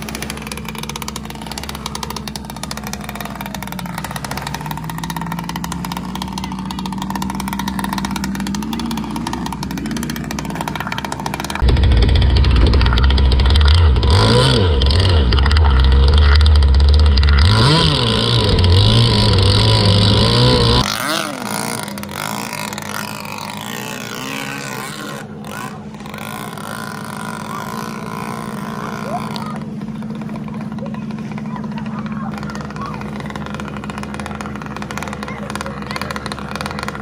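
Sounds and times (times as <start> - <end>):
rc boat motor humming: 0.0 - 37.0.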